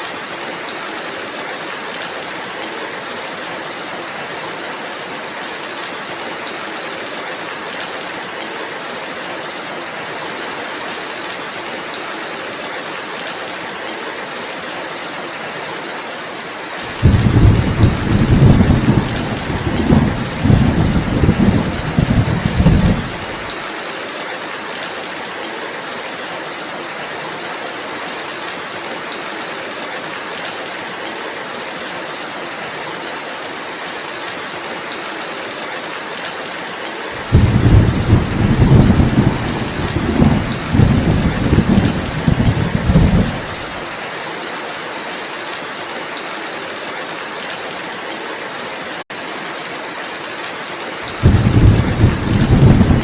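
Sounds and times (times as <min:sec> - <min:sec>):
steady rain falling: 0:00.0 - 0:53.0
thunder rumbling: 0:16.9 - 0:23.4, 0:37.2 - 0:43.8, 0:51.2 - 0:53.0.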